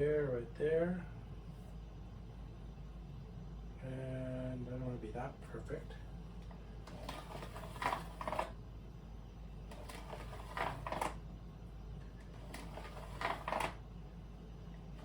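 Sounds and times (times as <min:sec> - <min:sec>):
low steady hum: 0:00.0 - 0:15.0
tools scratching on floor panel: 0:06.9 - 0:08.6, 0:09.7 - 0:11.2, 0:12.3 - 0:13.8.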